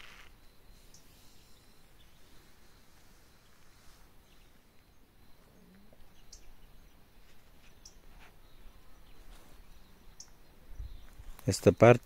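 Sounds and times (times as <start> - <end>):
high bird chirps: 0.0 - 11.2.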